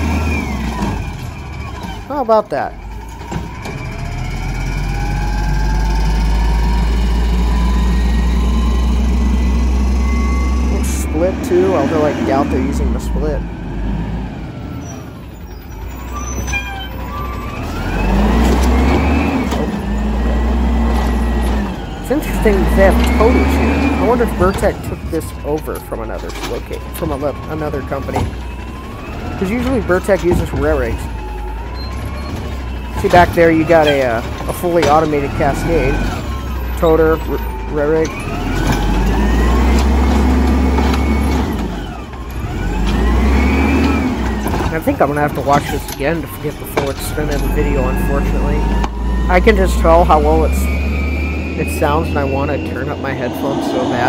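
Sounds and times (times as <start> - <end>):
garbage truck revving: 0.0 - 54.0
rising whine: 47.0 - 54.0.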